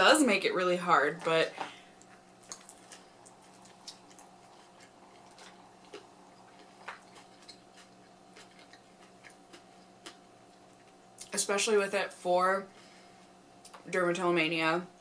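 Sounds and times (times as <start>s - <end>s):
faint steady hum: 0.0s - 15.0s
person chewing food: 1.9s - 11.3s.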